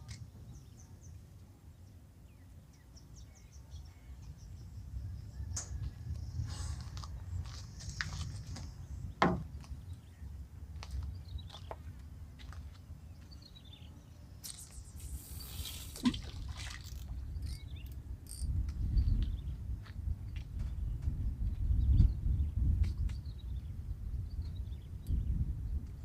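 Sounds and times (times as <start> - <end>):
wind rumble on microphone: 3.2 - 12.0, 15.0 - 26.0
brief hiss: 14.4 - 16.2.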